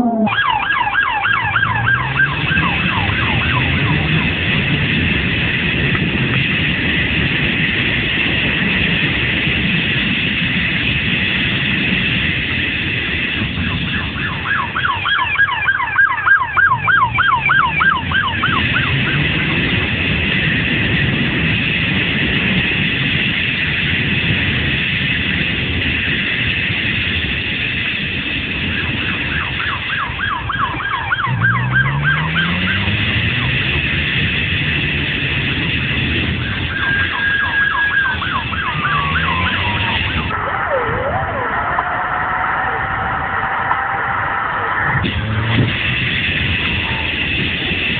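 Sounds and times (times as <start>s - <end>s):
police siren yelping: 0.0s - 5.4s, 13.1s - 21.2s, 28.4s - 34.3s, 35.2s - 47.9s
engine accelerating: 0.0s - 47.9s
vehicle and road noise: 0.0s - 47.9s.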